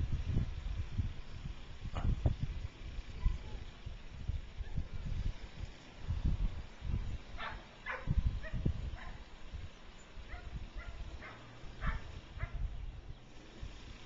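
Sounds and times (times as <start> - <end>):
dog barking: 7.4 - 9.2, 10.3 - 12.6.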